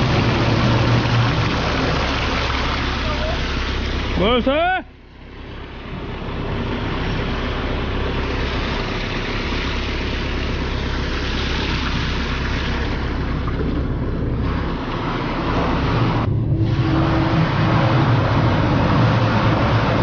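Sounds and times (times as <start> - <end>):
deep rumble with low tone: 0.0 - 20.0
heavy machinery rushing noise: 10.9 - 20.0.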